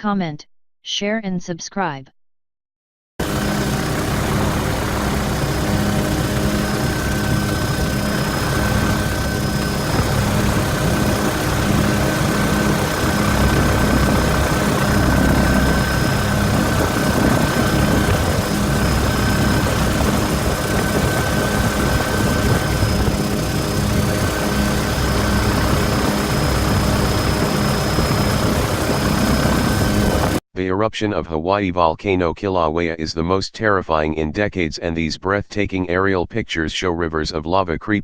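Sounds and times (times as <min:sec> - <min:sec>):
aircraft engine drone: 0:03.2 - 0:30.4
thin high whine: 0:03.2 - 0:30.4.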